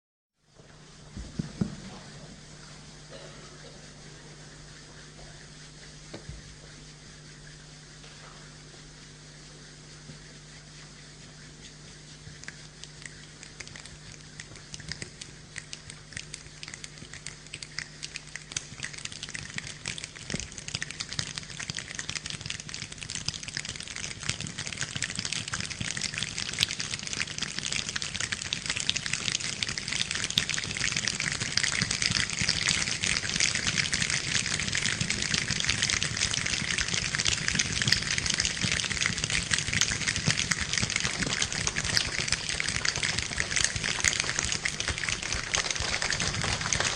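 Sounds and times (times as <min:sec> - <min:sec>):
choir imitating rain: 0:29.8 - 0:46.9.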